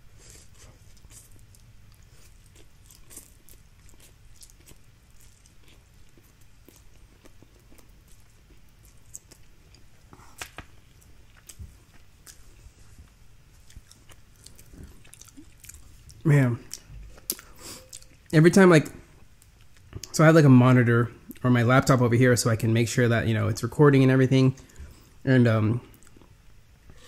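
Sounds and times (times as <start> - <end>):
person chewing noodles: 0.1 - 18.3.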